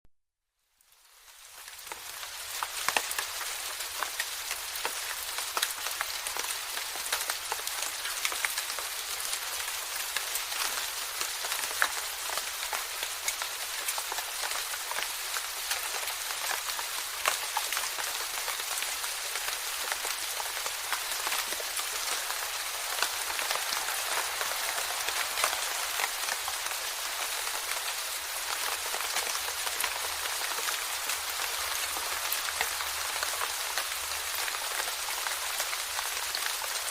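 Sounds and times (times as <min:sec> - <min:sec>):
rain falling: 0:00.6 - 0:36.9
raindrops ticking on a surface: 0:00.7 - 0:36.9.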